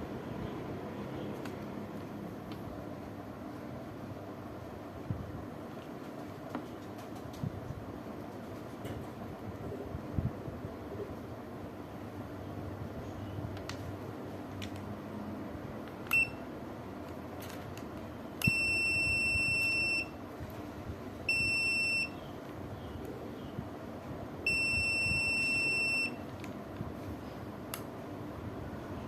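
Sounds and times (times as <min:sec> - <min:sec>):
multimeter buzzer beeping: 0:16.1 - 0:16.4, 0:18.4 - 0:20.2, 0:21.3 - 0:22.2, 0:24.5 - 0:26.2.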